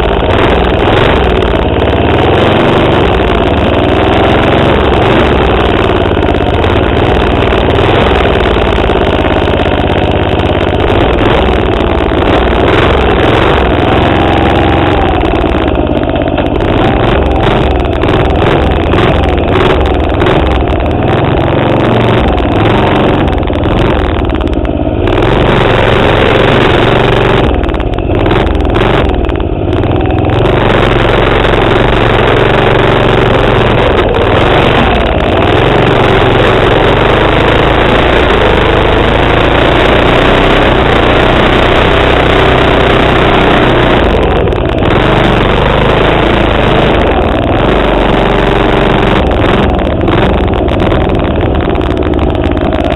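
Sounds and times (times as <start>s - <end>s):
small engine revving: 0.0s - 52.9s.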